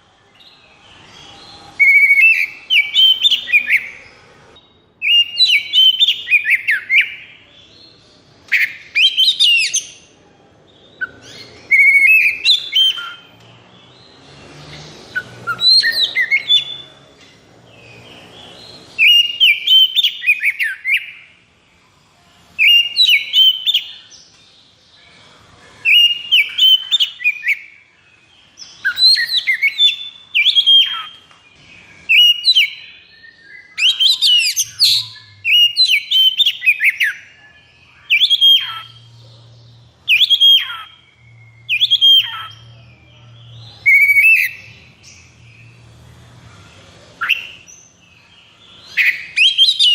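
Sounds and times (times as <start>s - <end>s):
songbird whistling and chattering: 0.4s - 4.1s, 5.0s - 7.4s, 8.4s - 10.1s, 11.0s - 13.5s, 15.1s - 16.9s, 17.8s - 21.3s, 22.6s - 24.1s, 25.8s - 27.8s, 28.6s - 31.3s, 32.0s - 39.2s, 40.0s - 45.7s, 47.1s - 49.9s.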